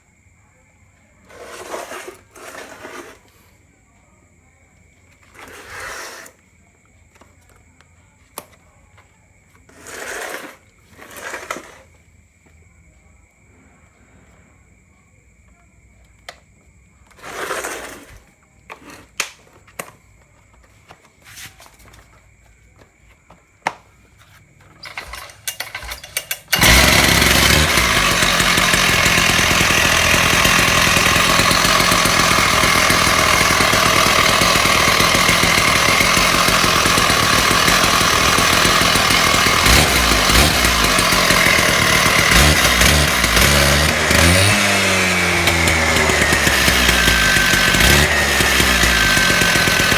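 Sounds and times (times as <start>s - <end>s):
short rasp: 1.3s - 3.5s, 5.2s - 6.4s, 9.7s - 11.9s, 17.1s - 19.2s
two-stroke engine running: 24.8s - 49.9s.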